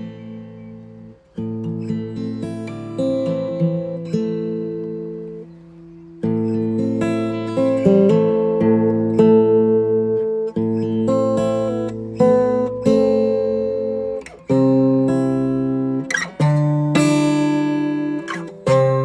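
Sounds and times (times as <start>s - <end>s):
acoustic guitar slow chords: 0.0s - 19.0s.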